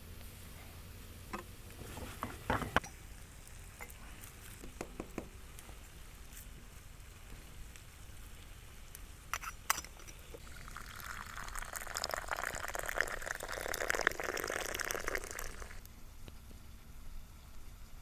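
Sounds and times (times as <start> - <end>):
liquid pouring: 9.8 - 15.8.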